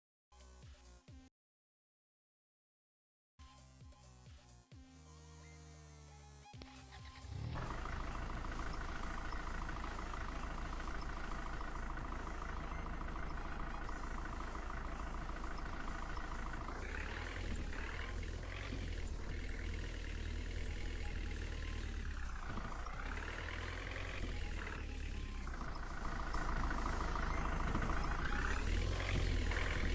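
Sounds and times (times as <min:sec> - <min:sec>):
tractor engine revving: 0:06.6 - 0:29.9.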